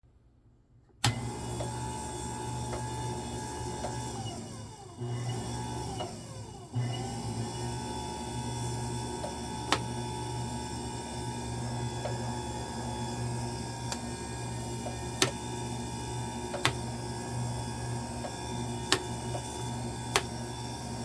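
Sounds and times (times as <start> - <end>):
band sealer motor humming: 6.8 - 21.0.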